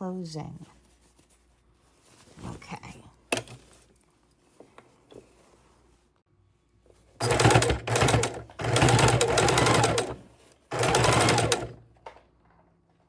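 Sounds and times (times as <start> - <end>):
sewing machine stitching: 7.2 - 11.8.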